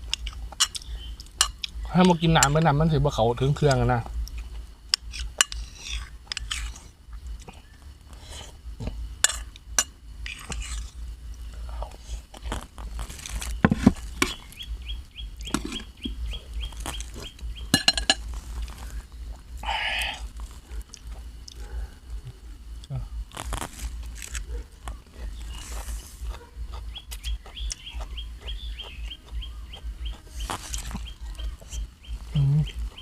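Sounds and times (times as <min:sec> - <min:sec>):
chewing and crunching food: 0:00.0 - 0:02.8, 0:03.6 - 0:33.0
birds chirping: 0:00.0 - 0:04.7, 0:07.4 - 0:08.0, 0:13.3 - 0:23.2, 0:24.4 - 0:33.0.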